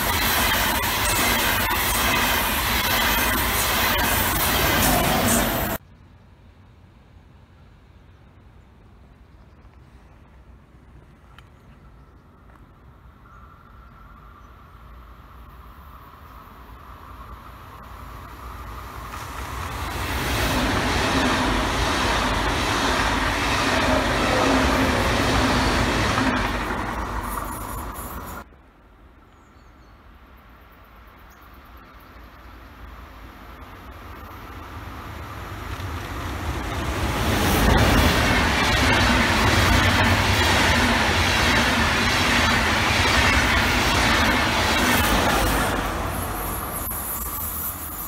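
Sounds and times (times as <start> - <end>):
locomotive-hauled train rolling past: 0.0 - 5.8, 14.0 - 28.5, 30.6 - 48.0
passenger train passing: 0.0 - 5.8, 12.5 - 28.9, 30.6 - 48.0.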